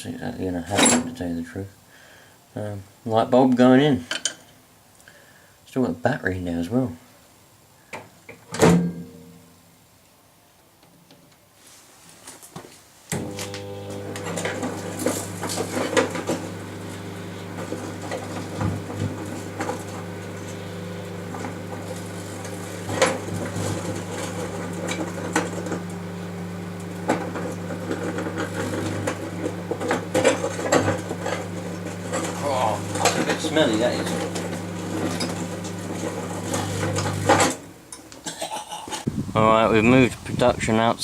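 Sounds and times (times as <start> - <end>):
microwave oven humming: 13.1 - 37.8.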